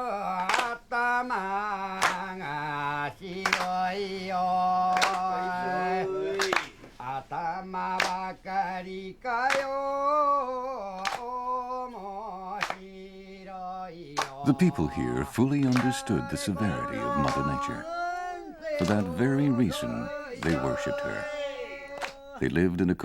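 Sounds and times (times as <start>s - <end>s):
person chanting long notes: 14.5s - 17.9s.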